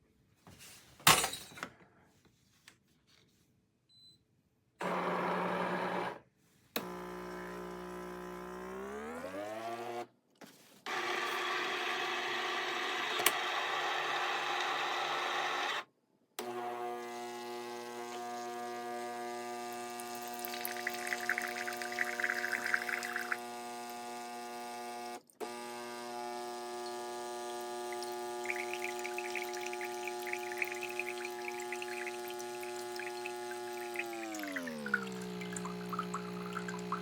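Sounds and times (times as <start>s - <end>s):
coffee maker pump humming: 4.8s - 6.1s, 6.8s - 10.0s, 10.9s - 15.8s, 16.4s - 37.0s
coffee splashing into cup: 19.9s - 23.5s, 26.8s - 37.0s.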